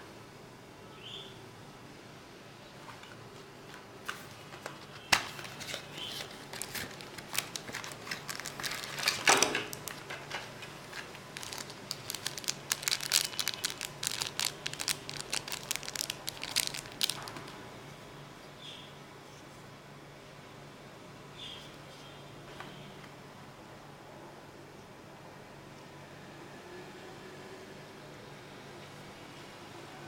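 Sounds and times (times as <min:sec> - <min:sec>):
packaging crinkling and tearing: 0:04.1 - 0:17.6.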